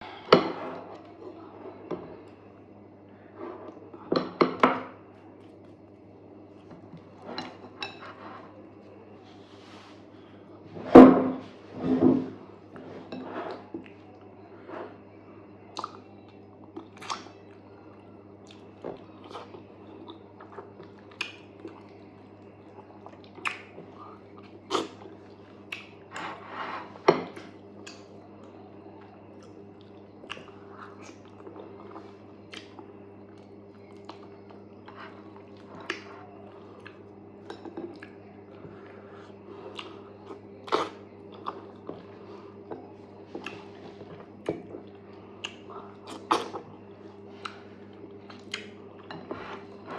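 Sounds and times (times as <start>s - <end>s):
steady low hum: 0.0s - 49.9s
wet chewing and mouth smacks: 47.4s - 49.1s.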